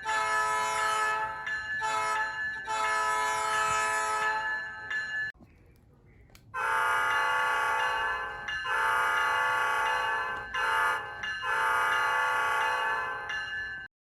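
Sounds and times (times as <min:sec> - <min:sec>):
locomotive air horn blasts: 0:00.0 - 0:04.4, 0:06.6 - 0:13.4.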